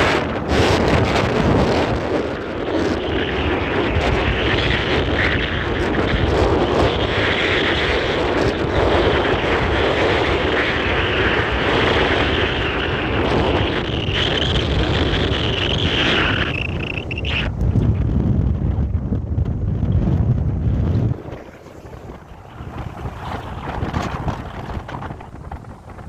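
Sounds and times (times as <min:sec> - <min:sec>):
road noise: 0:12.6 - 0:18.0, 0:20.3 - 0:26.0.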